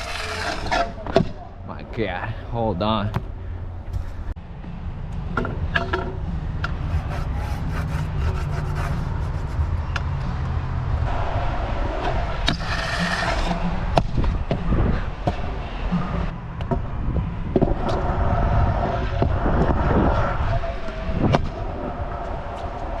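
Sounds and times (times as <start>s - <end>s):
scooter wheels rolling on concrete: 0.0s - 1.2s, 6.6s - 14.6s
scraping rush: 6.7s - 14.0s.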